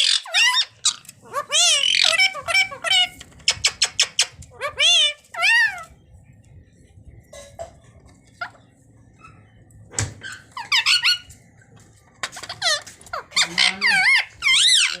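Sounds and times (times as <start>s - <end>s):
parrot squeaky calls: 0.0s - 5.9s, 10.2s - 11.4s, 12.4s - 15.0s.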